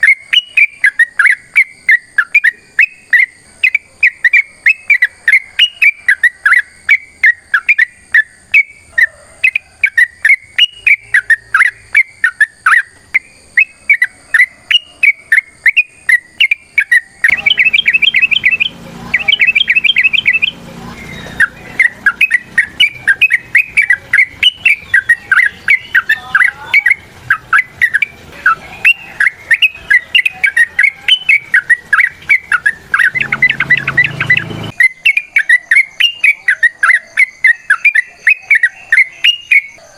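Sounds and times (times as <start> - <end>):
bird chattering song: 0.0 - 39.9
low hum: 17.3 - 22.8, 32.6 - 34.8.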